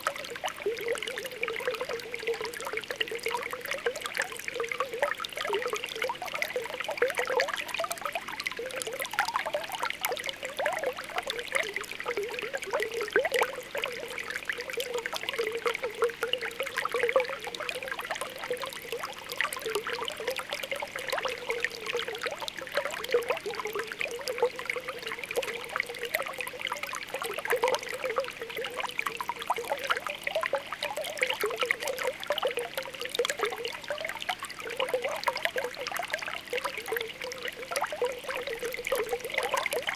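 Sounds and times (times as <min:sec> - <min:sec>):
spring water bubbling: 0:00.0 - 0:39.9
water trickling: 0:00.0 - 0:39.9.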